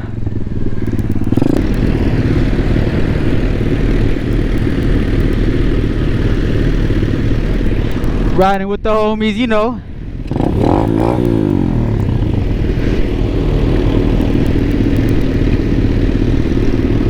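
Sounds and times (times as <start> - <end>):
small motorbike engine: 0.0 - 8.6, 9.8 - 17.0.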